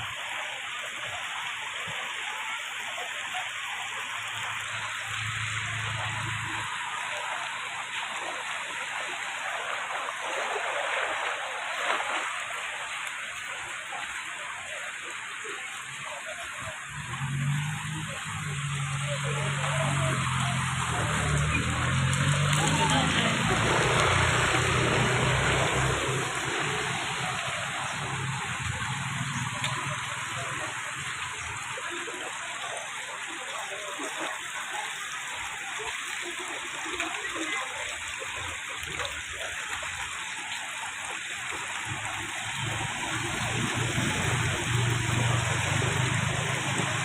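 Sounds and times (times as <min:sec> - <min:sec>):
water rushing: 0:00.0 - 0:47.0
low vehicle engine hum: 0:16.7 - 0:31.6.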